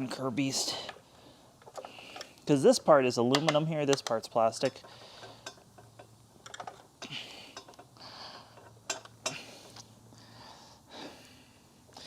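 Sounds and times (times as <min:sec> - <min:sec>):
plastic parts clicking and scraping: 0:03.4 - 0:06.9.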